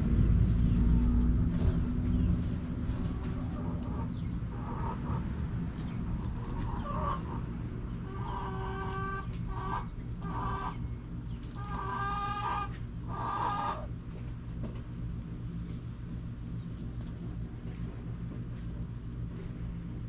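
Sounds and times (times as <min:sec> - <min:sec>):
steady low rumble: 0:00.0 - 0:11.6
chickens calling: 0:00.5 - 0:14.3.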